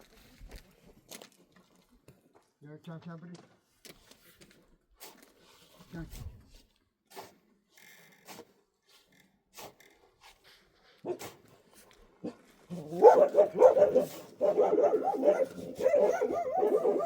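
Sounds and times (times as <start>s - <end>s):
dog barking: 11.0s - 11.4s, 12.2s - 17.0s.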